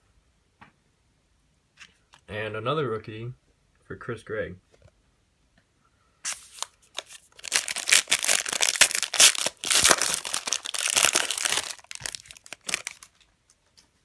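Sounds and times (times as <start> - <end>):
wrapper crinkling and tearing: 6.3 - 13.3.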